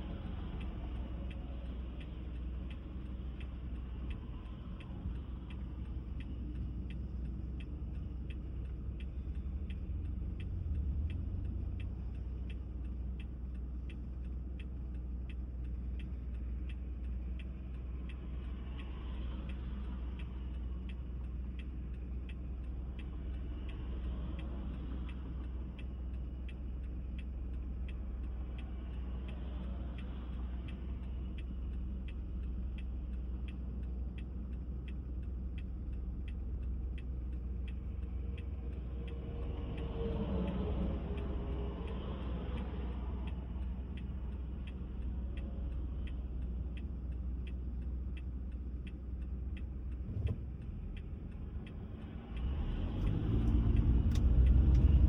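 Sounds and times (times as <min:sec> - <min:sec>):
car engine and tyre rumble: 0:00.0 - 0:55.0
faint regular ticking: 0:00.0 - 0:55.0.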